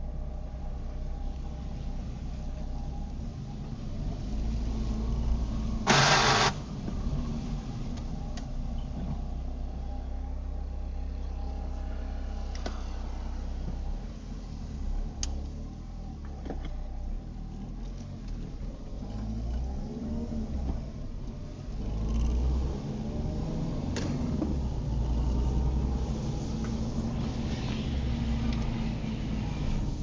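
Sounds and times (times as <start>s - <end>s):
car engine running: 5.2s - 7.2s
loud burst of noise: 5.9s - 6.6s.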